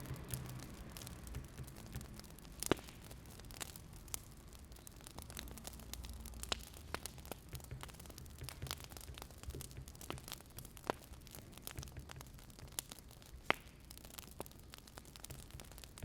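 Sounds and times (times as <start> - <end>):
low steady rumble: 0.0 - 8.6
wood fire crackling: 0.0 - 16.0.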